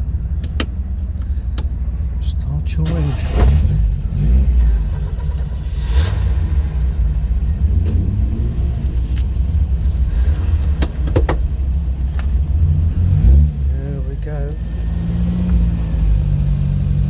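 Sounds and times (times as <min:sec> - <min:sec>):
car engine rumbling: 0:00.0 - 0:17.0
sharp clicks: 0:00.4 - 0:01.8.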